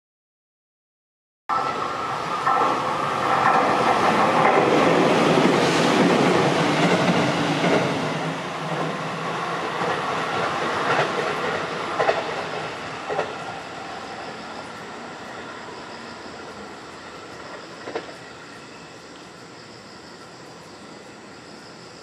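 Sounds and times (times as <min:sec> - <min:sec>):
electric train passing at speed: 0:01.5 - 0:22.0
wheels clacking over rail joints: 0:09.7 - 0:13.6.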